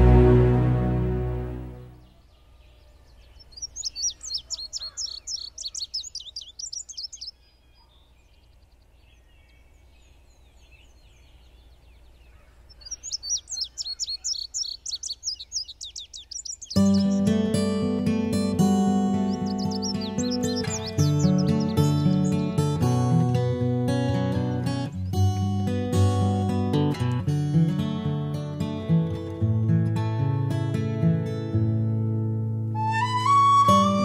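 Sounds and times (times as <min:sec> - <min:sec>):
background music: 0:00.0 - 0:02.1, 0:30.2 - 0:34.0
songbird singing high notes: 0:03.1 - 0:08.6, 0:12.3 - 0:22.8, 0:32.8 - 0:34.0.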